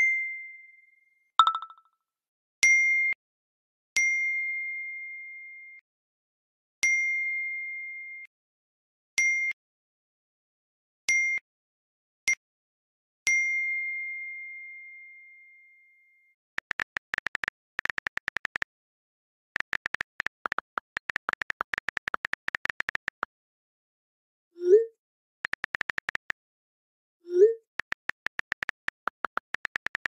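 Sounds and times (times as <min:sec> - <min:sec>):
bright electronic dings: 0:01.4 - 0:01.8
rapid high typing clicks: 0:16.6 - 0:18.7, 0:19.6 - 0:23.3, 0:25.4 - 0:26.4, 0:27.7 - 0:30.0.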